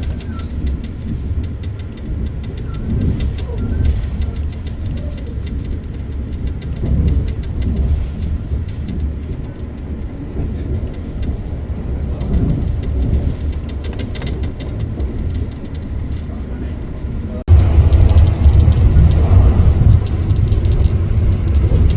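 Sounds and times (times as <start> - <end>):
passenger train rumbling: 0.0 - 21.9
train wheels clicking and rattling: 0.0 - 21.9.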